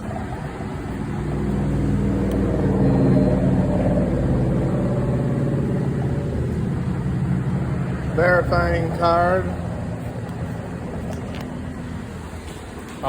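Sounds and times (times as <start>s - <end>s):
motor humming: 0.0s - 8.2s.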